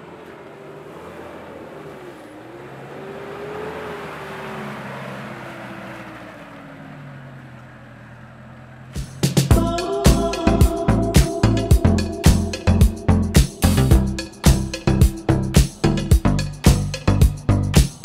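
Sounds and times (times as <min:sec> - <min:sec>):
engine revving: 0:00.0 - 0:18.0
music with heavy beats: 0:09.0 - 0:18.0.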